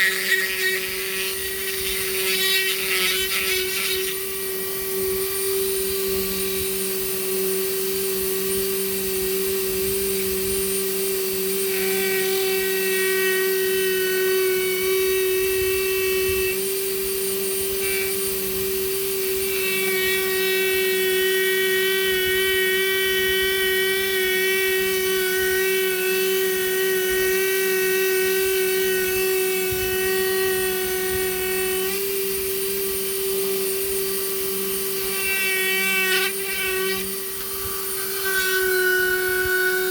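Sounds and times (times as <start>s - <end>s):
rotary power tool carving wood: 0.0s - 39.9s.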